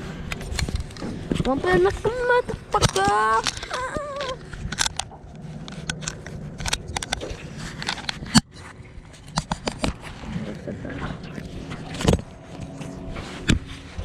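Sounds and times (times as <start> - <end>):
clicks knocks and scrapes: 2.7 - 10.3.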